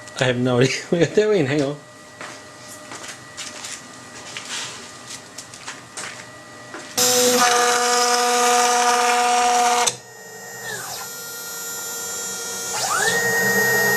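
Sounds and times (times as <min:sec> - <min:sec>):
cnc router spindle whining: 0:07.0 - 0:13.9.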